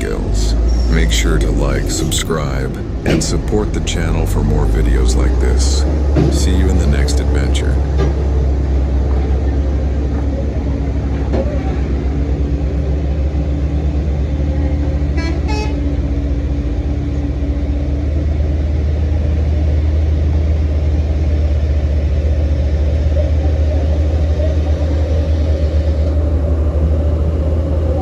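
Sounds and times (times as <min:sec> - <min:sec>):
diesel truck engine rumble: 0:00.0 - 0:28.0
vehicle horn toots: 0:15.2 - 0:15.9.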